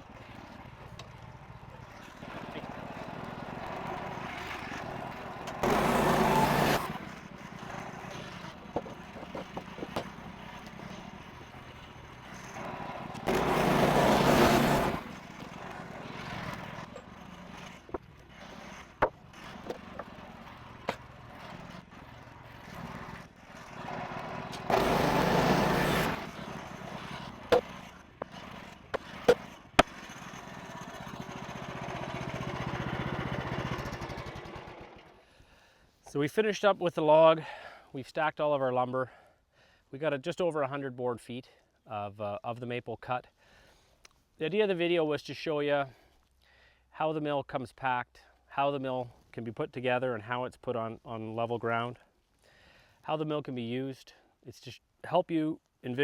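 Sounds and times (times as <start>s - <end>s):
sawmill engine running: 0.0s - 35.2s
loud sawing bursts: 2.0s - 35.1s.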